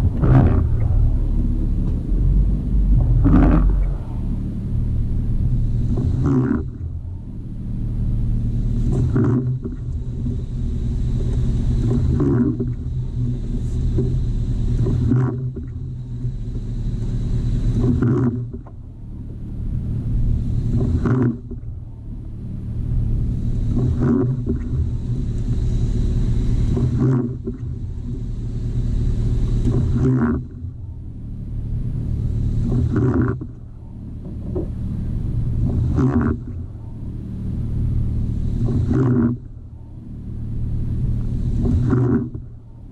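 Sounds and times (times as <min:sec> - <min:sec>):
noise building and cutting off: 0:00.0 - 0:15.1
car engine running: 0:00.0 - 0:42.9.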